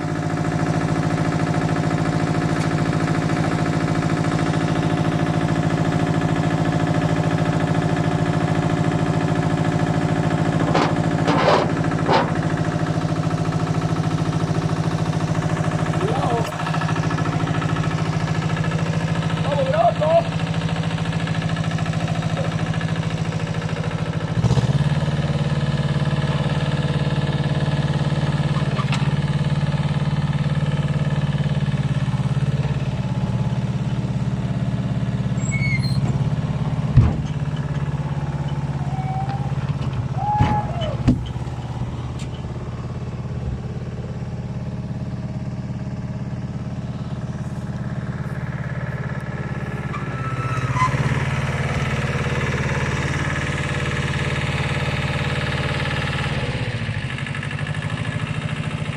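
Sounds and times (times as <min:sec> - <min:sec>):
tractor engine running: 0:00.0 - 0:58.9
brief squeals: 0:35.4 - 0:36.2, 0:38.8 - 0:39.6, 0:40.2 - 0:41.0, 0:49.9 - 0:51.2.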